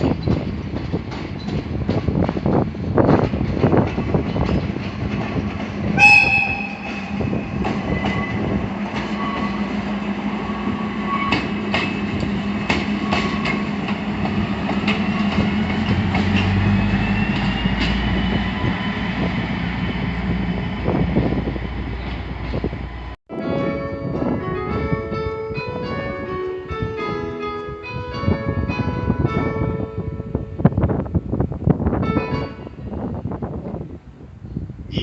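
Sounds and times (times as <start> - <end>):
train wheels clicking on rails: 0.0 - 19.5
train horn blast: 6.0 - 7.5.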